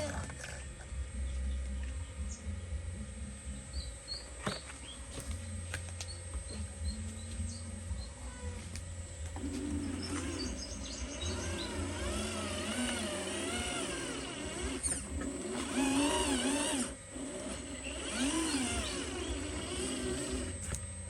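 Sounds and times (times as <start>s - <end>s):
small electric motors whining: 0.0s - 21.0s.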